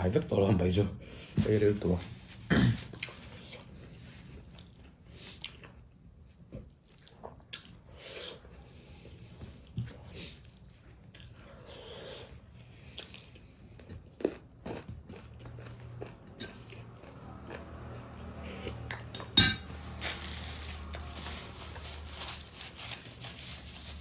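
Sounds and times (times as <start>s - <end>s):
person chewing food: 2.9s - 21.1s.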